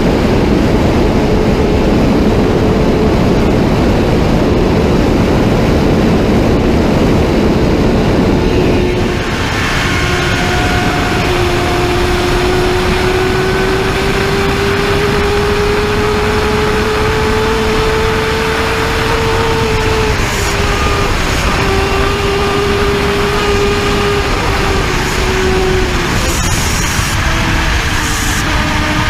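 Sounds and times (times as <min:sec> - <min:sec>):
motorcycle engine at high speed: 0:00.0 - 0:29.0
wind rush: 0:00.0 - 0:29.0.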